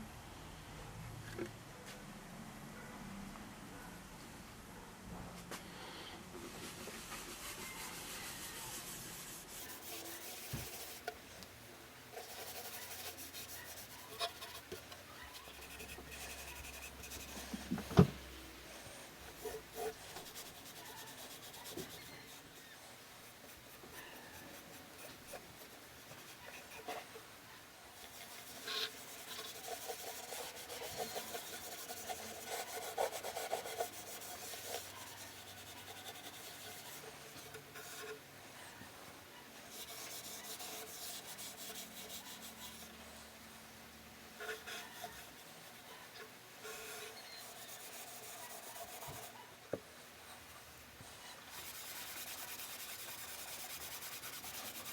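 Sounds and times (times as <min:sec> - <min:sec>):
hand rubbing on wooden body: 0:06.6 - 0:11.2, 0:12.1 - 0:27.2, 0:28.0 - 0:38.2, 0:51.3 - 0:54.9.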